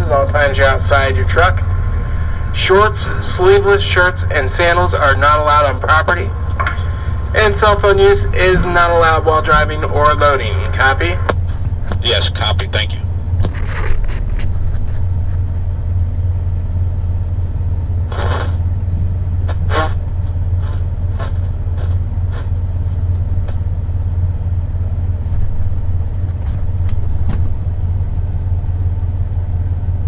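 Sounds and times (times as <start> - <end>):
diesel truck engine droning: 0.0 - 30.0
noisy crackles: 18.1 - 18.7.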